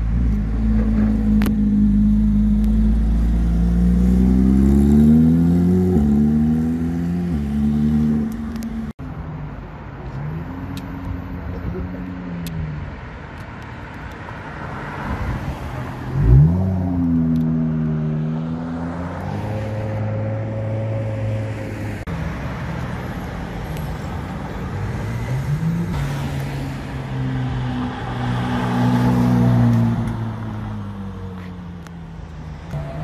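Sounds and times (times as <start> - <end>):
sports car engines accelerating: 0.0 - 8.9, 15.9 - 22.1.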